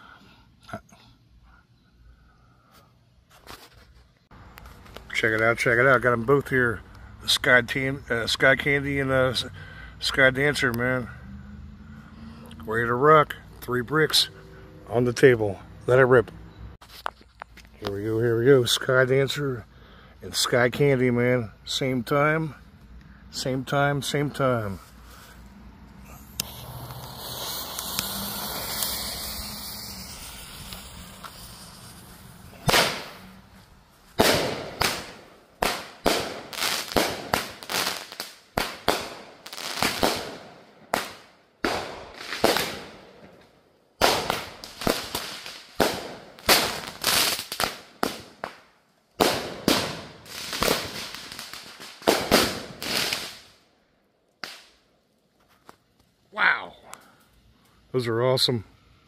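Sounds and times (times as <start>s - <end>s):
fuse hissing: 26.0s - 33.4s
fireworks bursting with sharp bangs: 26.0s - 53.6s.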